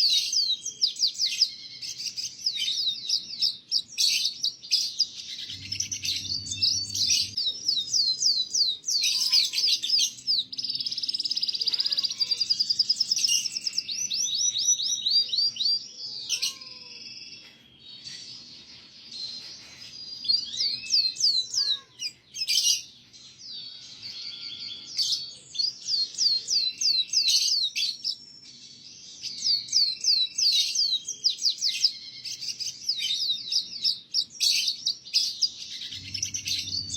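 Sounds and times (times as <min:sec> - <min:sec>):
canary trilling: 0:00.0 - 0:18.3, 0:19.1 - 0:28.3, 0:29.2 - 0:36.9.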